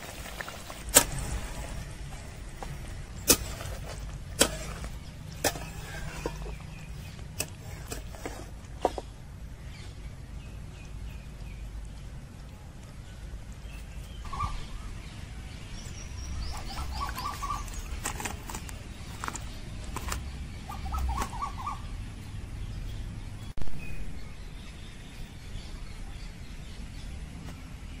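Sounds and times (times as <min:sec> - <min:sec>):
birds chirping: 0:00.0 - 0:28.0
low steady rumble: 0:00.0 - 0:28.0.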